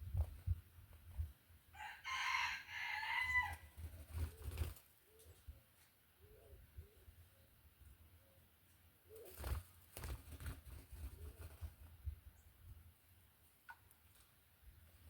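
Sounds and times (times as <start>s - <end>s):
rooster crowing: 1.8s - 3.7s.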